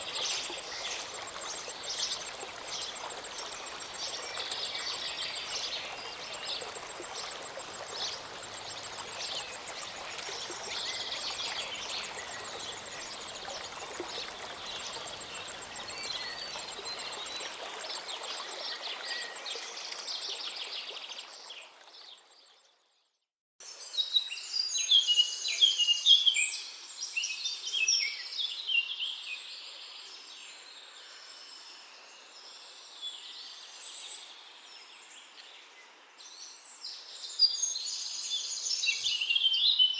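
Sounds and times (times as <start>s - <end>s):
birds singing: 0.0s - 17.5s
stream running: 0.0s - 22.5s.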